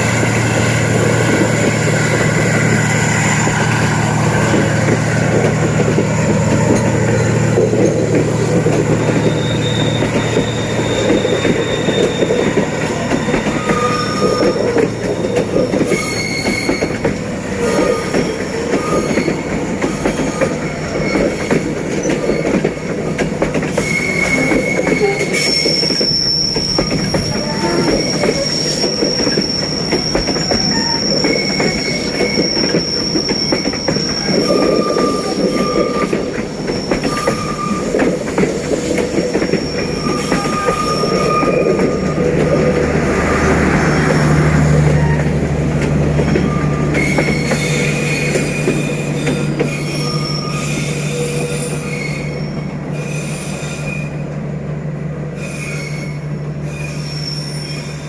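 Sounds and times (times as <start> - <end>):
train wheels clattering on rails: 0.0 - 54.4
wheels squealing: 0.1 - 54.2, 55.3 - 58.0.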